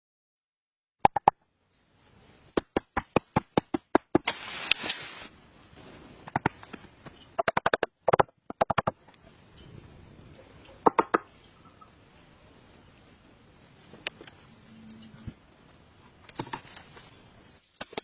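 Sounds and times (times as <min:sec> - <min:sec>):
rustling noise: 0:04.2 - 0:07.2, 0:12.6 - 0:17.9.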